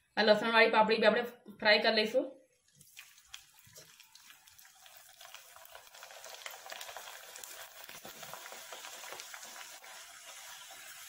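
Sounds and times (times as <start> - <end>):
food frying in hot oil: 2.6 - 11.0.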